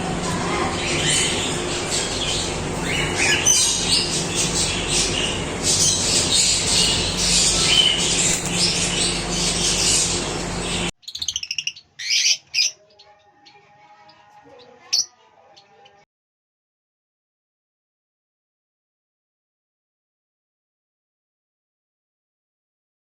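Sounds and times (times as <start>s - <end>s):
steady low hum: 0.0s - 10.9s
parrots chattering and squawking: 0.0s - 15.9s.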